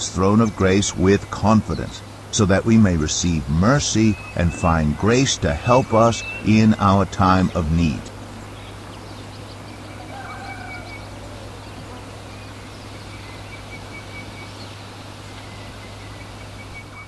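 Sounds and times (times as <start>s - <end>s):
steady low hum: 0.0s - 10.2s
faint birds chirping: 0.0s - 17.0s.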